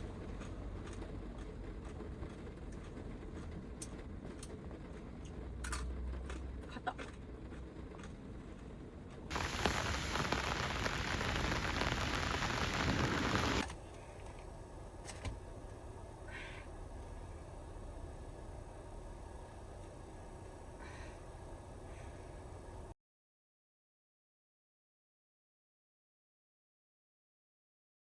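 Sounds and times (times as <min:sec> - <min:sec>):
heavy downpour hiss: 0:09.3 - 0:13.7
rain patter on vehicle: 0:09.3 - 0:13.7.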